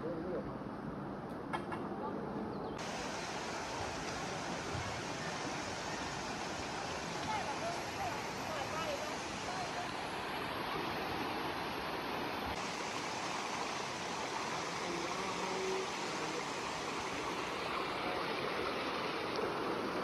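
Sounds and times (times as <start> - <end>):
stream water rushing: 2.8 - 20.0.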